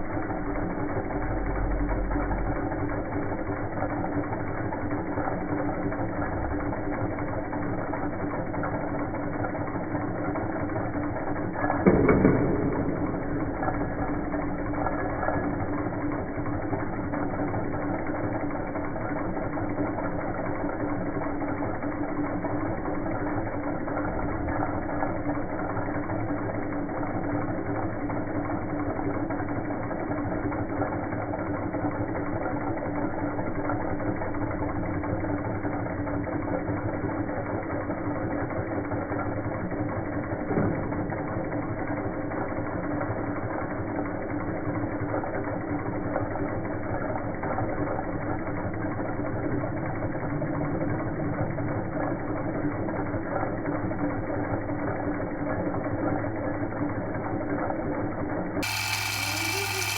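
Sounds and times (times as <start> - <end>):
steady hum: 0.0 - 42.0, 58.5 - 59.9
engines mechanical whir: 0.0 - 59.9.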